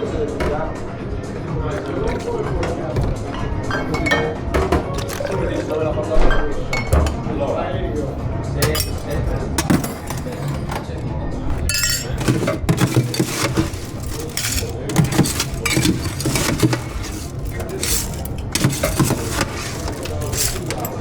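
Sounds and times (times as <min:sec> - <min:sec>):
glassware and bar tools clinking: 0:01.7 - 0:05.8, 0:08.6 - 0:21.0.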